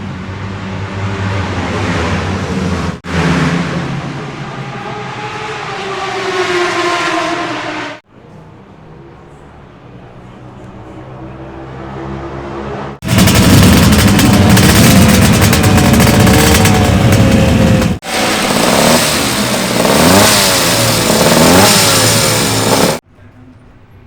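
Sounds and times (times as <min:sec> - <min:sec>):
motorcycle engine revving: 0:00.4 - 0:08.0, 0:11.7 - 0:23.0
two-stroke motorcycle engine running: 0:13.0 - 0:23.0.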